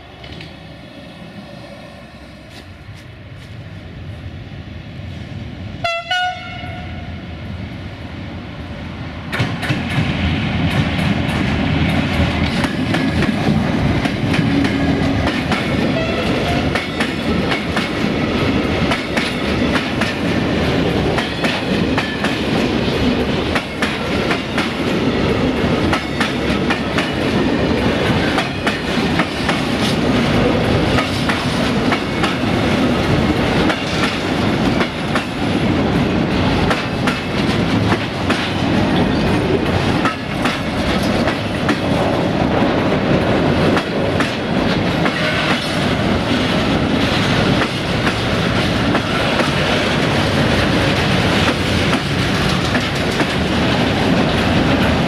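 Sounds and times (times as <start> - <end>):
train rumbling past: 0.0 - 55.0
train horn blast: 5.8 - 7.2, 16.0 - 16.8
wheels clicking over rail joints: 43.6 - 55.0.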